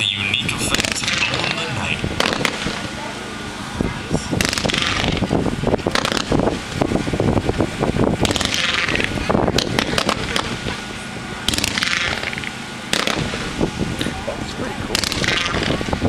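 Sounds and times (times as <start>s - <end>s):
fireworks shots and bangs: 0.5s - 3.0s, 4.3s - 7.4s, 8.0s - 14.1s, 14.9s - 16.0s.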